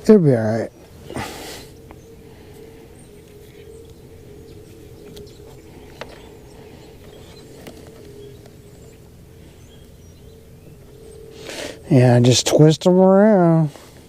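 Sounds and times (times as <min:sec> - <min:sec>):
steady low hum: 0:00.0 - 0:14.0
faint bird chirps: 0:00.4 - 0:12.7.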